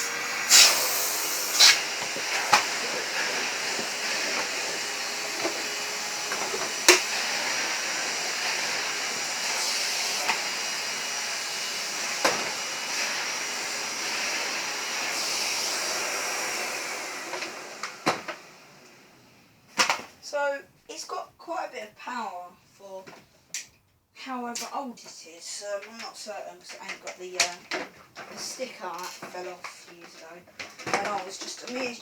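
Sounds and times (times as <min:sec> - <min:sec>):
vacuum cleaner whining: 0:00.0 - 0:20.1, 0:26.6 - 0:32.0.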